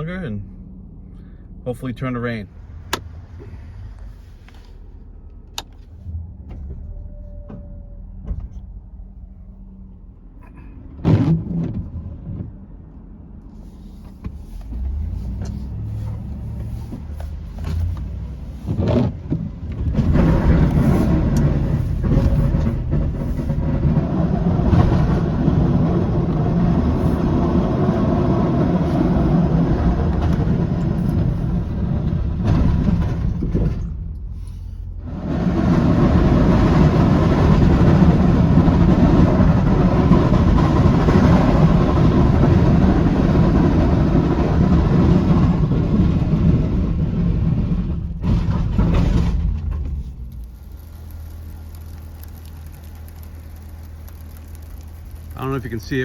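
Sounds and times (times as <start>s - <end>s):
truck engine running: 13.2s - 56.0s.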